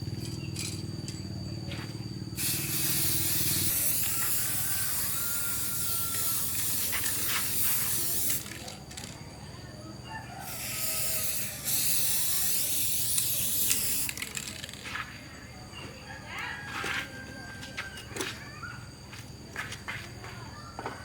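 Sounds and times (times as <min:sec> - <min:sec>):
spraying hiss: 0:02.4 - 0:08.8, 0:10.4 - 0:14.3.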